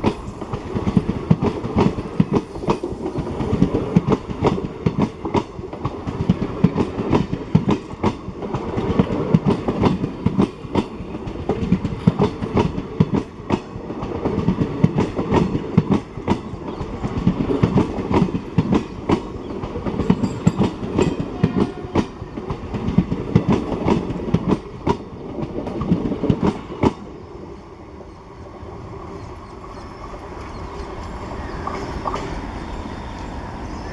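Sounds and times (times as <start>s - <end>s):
faint train rumble: 0.0s - 33.9s
train wheels clattering over rail joints: 28.8s - 33.3s.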